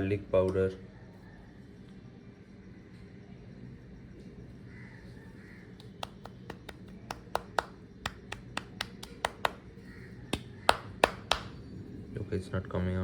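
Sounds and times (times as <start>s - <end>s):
container being tapped and shaken: 5.8s - 9.6s.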